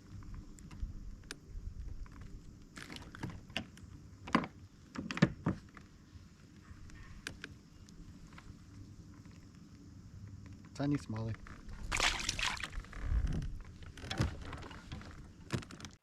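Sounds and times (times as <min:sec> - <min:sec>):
low wind rumble: 0:00.0 - 0:02.7, 0:11.3 - 0:15.5
knocks and rattles against kayak: 0:00.1 - 0:05.9, 0:10.4 - 0:16.0.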